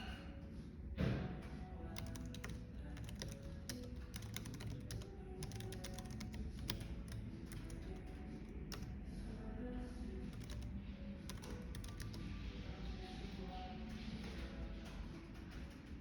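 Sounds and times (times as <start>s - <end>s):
low background hum: 0.0s - 16.0s
typing on a keyboard: 1.4s - 9.0s, 10.1s - 12.4s, 13.2s - 16.0s.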